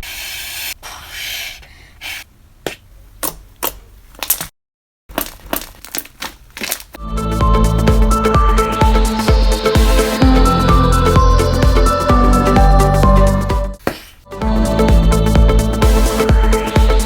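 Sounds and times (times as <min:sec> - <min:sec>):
slime popping and crackling: 0:05.1 - 0:07.0
slime squelching: 0:05.1 - 0:07.0
music: 0:07.0 - 0:17.0.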